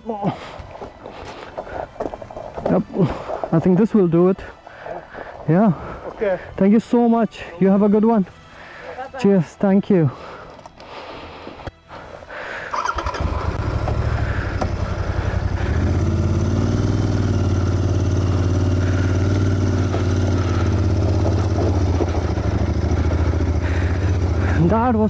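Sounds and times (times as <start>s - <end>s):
motorcycle engine starting and running: 12.7s - 25.0s.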